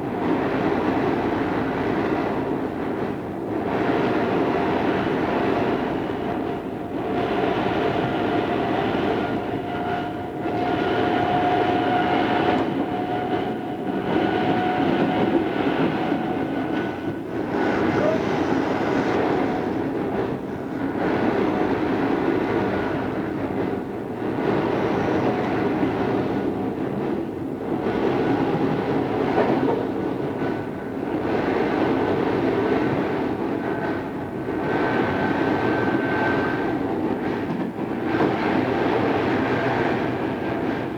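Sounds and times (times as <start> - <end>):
electric train running: 10.5 - 23.2
rail-joint clatter: 16.6 - 21.7, 29.2 - 31.3.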